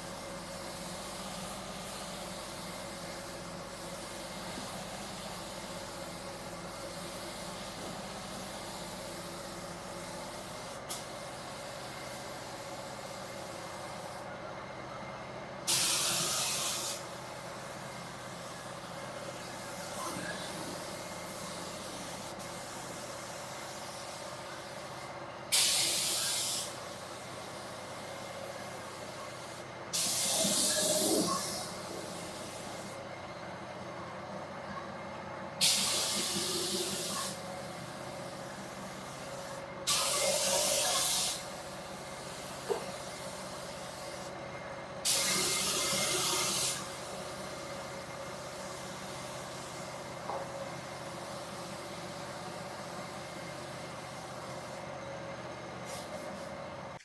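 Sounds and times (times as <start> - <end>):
spray gun hissing: 15.7 - 17.1, 21.2 - 27.7, 28.8 - 32.9, 35.6 - 38.0, 38.7 - 41.6, 45.0 - 47.5.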